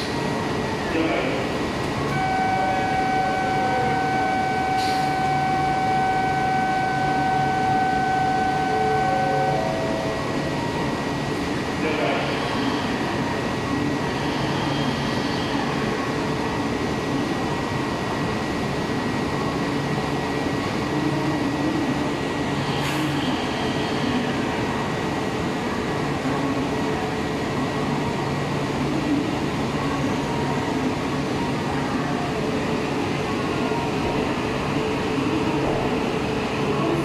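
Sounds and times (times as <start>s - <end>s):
steady high tone: 2.1s - 10.9s.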